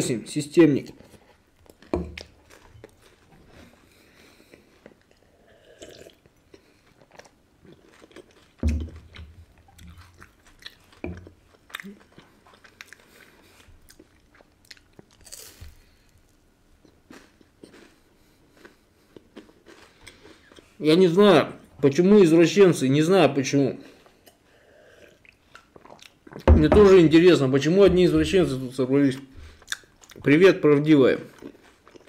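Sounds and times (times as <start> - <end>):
chewing and crunching wafer candy: 0.8 - 20.8, 23.8 - 26.5, 29.2 - 32.0
dull thumps: 8.6 - 9.4, 26.5 - 28.6.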